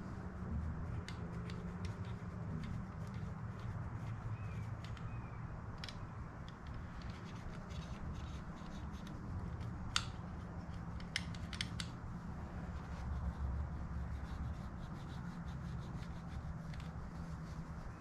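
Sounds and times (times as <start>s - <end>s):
scratching and rubbing at a knob: 0.0s - 18.0s
steady low hum: 0.0s - 18.0s
sharp clicks: 9.0s - 12.0s.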